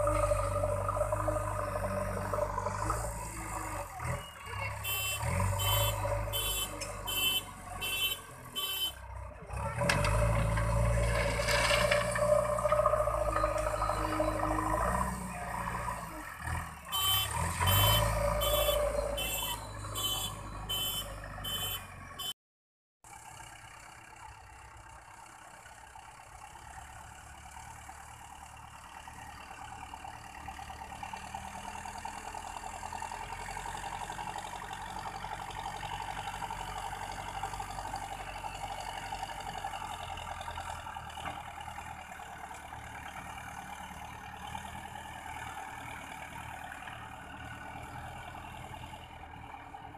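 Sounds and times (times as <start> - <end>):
diesel engine running: 0.0 - 22.2
loud engine rumble: 0.0 - 22.3, 23.1 - 49.9
reversing alarm beeps: 13.2 - 14.6.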